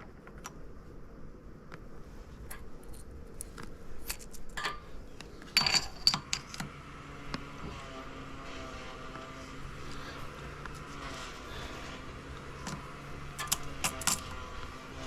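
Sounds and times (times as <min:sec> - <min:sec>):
faint steady hum: 0:00.0 - 0:15.0
small metal parts clicking: 0:02.5 - 0:06.7, 0:12.6 - 0:14.8
metallic clinking and ringing: 0:04.0 - 0:06.6, 0:12.6 - 0:14.7.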